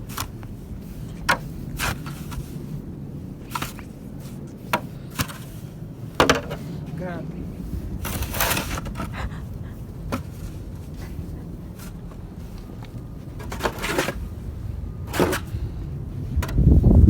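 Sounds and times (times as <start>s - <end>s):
crunching in deep snow: 0.0s - 6.0s
low steady rumble: 0.0s - 17.0s.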